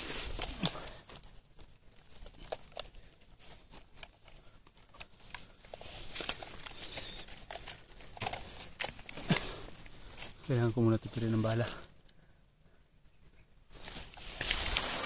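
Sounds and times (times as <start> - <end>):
footsteps on dry leaves and grass: 0.0 - 2.4, 13.7 - 15.0
leaves and stems brushing: 0.0 - 11.9, 13.7 - 15.0.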